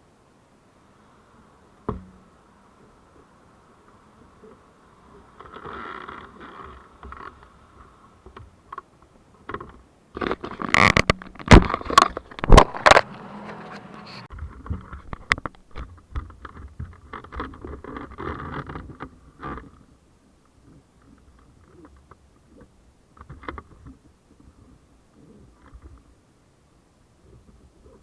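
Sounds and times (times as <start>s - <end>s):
sharp knocks and scrapes: 5.4s - 19.8s.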